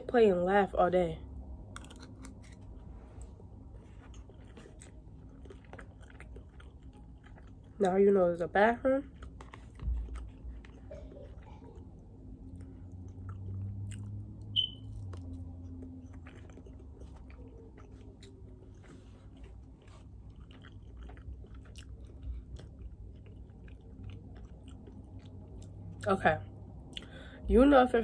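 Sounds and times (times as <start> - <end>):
person chewing: 1.6 - 7.9, 9.0 - 26.0
high-pitched squeak: 14.6 - 14.9.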